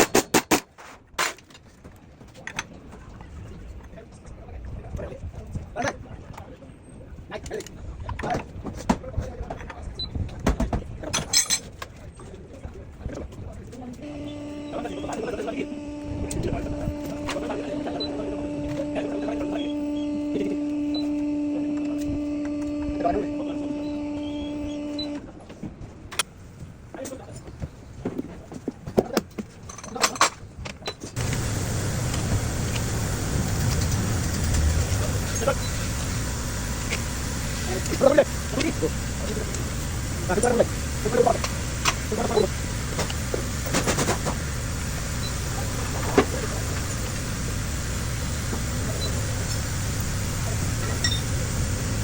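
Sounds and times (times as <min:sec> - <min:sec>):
engine running: 0:14.0 - 0:25.3, 0:31.2 - 0:52.0.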